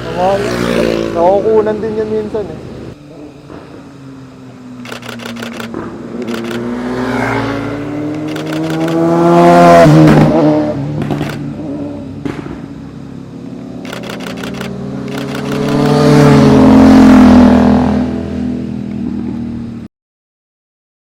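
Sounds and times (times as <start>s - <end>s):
engine approaching: 0.0s - 19.9s
motorcycle engine passing: 3.0s - 12.7s, 13.6s - 19.8s
camera shutter bursts: 4.8s - 6.7s, 8.1s - 9.1s, 11.0s - 11.5s, 13.8s - 16.2s.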